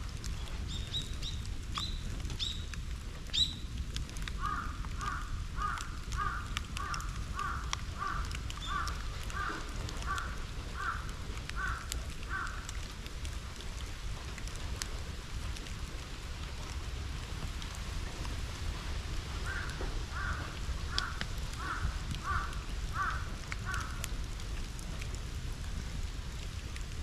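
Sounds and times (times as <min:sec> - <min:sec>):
bonfire crackling: 0:00.0 - 0:27.0
crow cawing: 0:04.4 - 0:12.6, 0:19.4 - 0:24.0.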